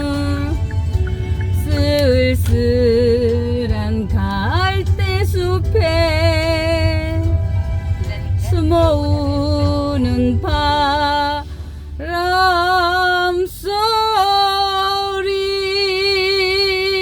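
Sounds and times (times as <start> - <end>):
woman singing a ballad: 0.0 - 0.8, 1.5 - 17.0
backing music: 0.0 - 12.8.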